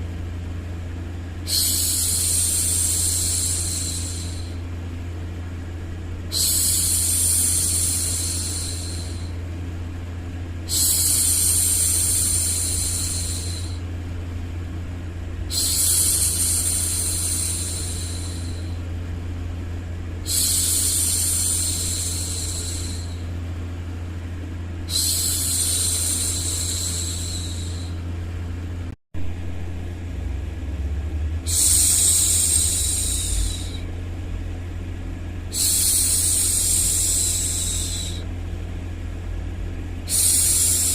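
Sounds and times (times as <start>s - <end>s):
low white noise: 0.0s - 40.9s
woman hushing shhh: 1.5s - 4.6s, 6.3s - 9.4s, 10.7s - 13.8s, 15.5s - 18.8s, 20.2s - 23.3s, 24.9s - 28.0s, 31.5s - 33.9s, 35.5s - 38.3s, 40.1s - 40.9s.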